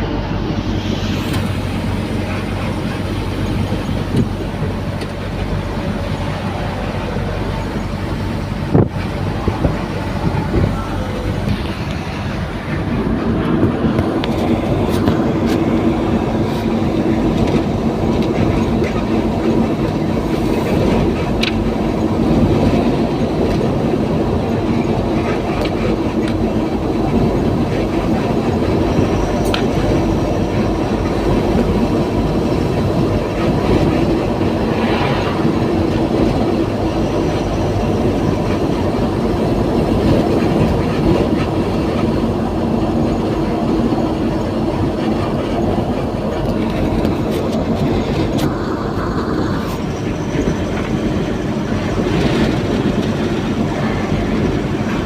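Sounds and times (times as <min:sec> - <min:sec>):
heavy vehicle rumbling: 0:00.0 - 0:55.0.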